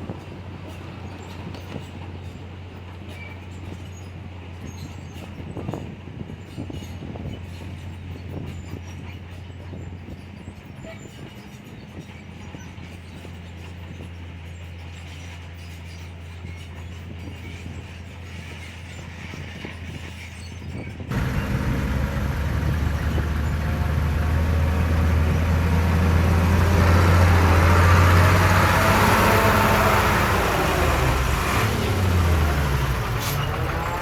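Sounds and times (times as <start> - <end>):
heavy diesel machinery engine drone: 21.1 - 34.0.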